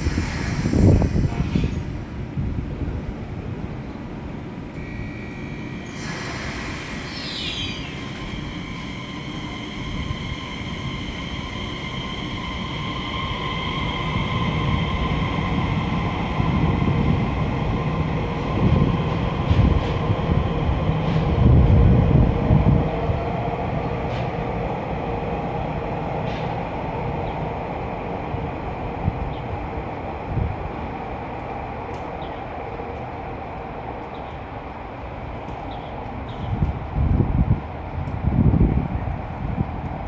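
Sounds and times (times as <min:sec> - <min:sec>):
rumble of wheels on track: 0:00.0 - 0:40.0
traction motors whining: 0:04.7 - 0:21.4
high squeal sliding downward: 0:04.8 - 0:17.1.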